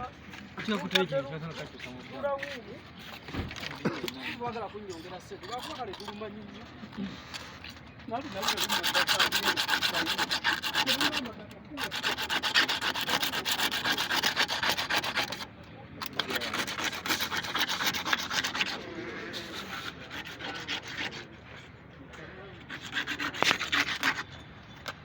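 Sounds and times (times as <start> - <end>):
fast rhythmic rubbing strokes: 4.2 - 21.8, 22.6 - 25.0.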